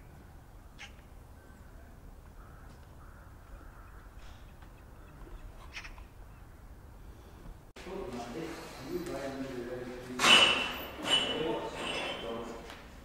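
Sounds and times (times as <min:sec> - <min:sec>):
short bird calls: 0:00.6 - 0:07.4.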